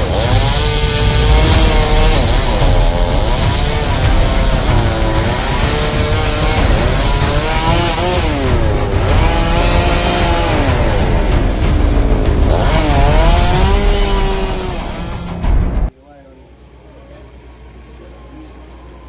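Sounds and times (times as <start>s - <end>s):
chainsaw engine revving while cutting: 0.0s - 15.4s.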